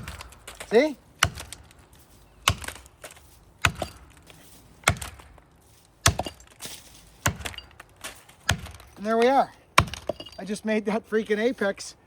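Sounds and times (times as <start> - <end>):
axe chopping tree trunk: 0.0 - 1.8, 2.4 - 5.4, 6.0 - 10.4.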